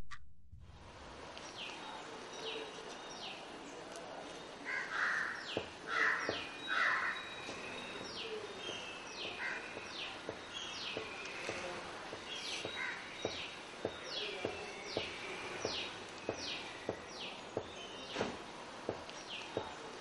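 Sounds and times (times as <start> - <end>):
faint outdoor background: 0.0 - 20.0
harsh low bird calls: 4.6 - 18.2.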